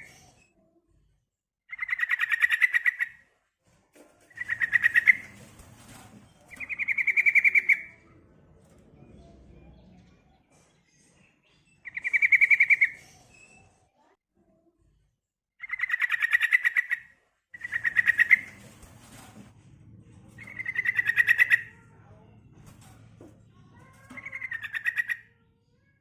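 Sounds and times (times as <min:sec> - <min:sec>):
bird chattering notes: 0:06.5 - 0:07.9, 0:20.4 - 0:21.7, 0:24.1 - 0:25.3.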